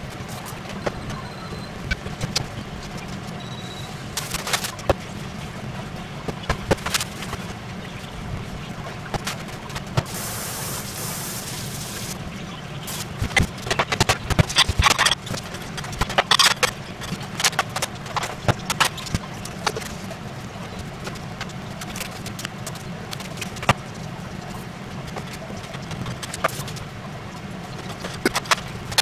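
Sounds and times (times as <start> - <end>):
steady low hum: 0.0 - 29.0
utensils and cookware clattering: 13.2 - 19.1.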